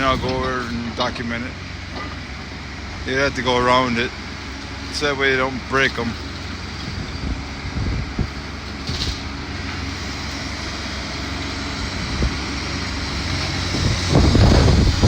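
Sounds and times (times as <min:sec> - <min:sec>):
wind rumbling on microphone: 0:00.0 - 0:00.7, 0:06.6 - 0:09.3, 0:11.7 - 0:15.0
diesel engine hum of heavy machinery: 0:00.0 - 0:15.0.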